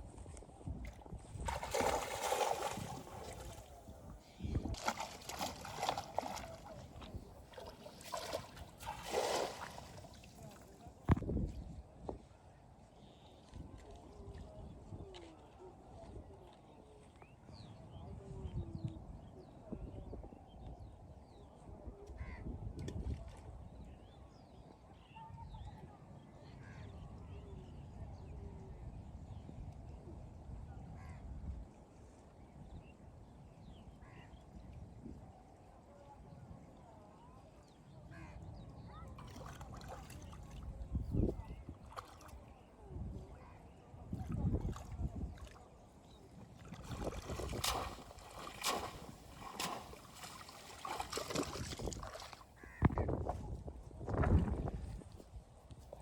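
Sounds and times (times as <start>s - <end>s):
water splashing and sloshing: 0.8s - 3.9s, 4.5s - 11.2s, 39.2s - 42.7s, 44.2s - 52.6s.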